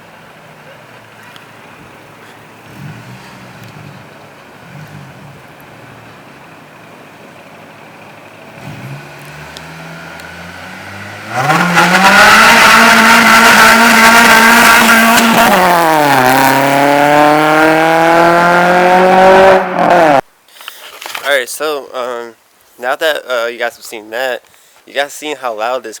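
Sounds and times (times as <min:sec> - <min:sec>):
car engine accelerating loudly: 0:02.2 - 0:06.9, 0:08.3 - 0:20.2.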